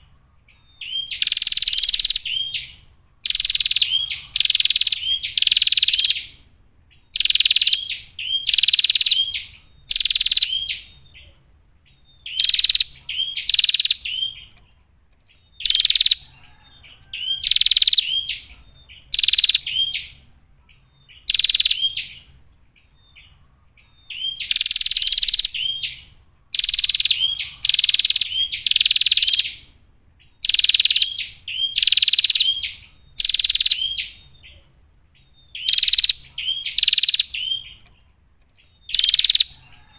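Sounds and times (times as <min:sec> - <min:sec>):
prinia buzzy rattling calls: 0:00.9 - 0:06.4, 0:07.1 - 0:10.9, 0:12.3 - 0:14.7, 0:15.3 - 0:20.3, 0:21.1 - 0:29.6, 0:30.3 - 0:34.6, 0:35.6 - 0:39.9.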